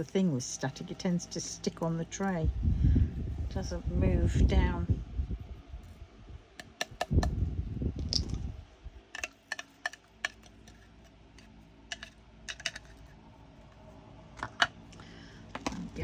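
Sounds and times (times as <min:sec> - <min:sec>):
resin beads clicking on plastic tray: 0:06.6 - 0:07.3, 0:09.2 - 0:10.8, 0:11.9 - 0:13.0.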